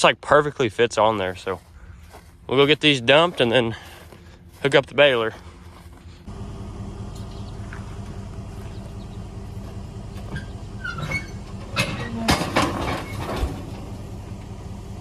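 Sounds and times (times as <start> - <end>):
vehicle engine running: 1.5 - 15.0
trailer knocking and rattling: 6.3 - 15.0.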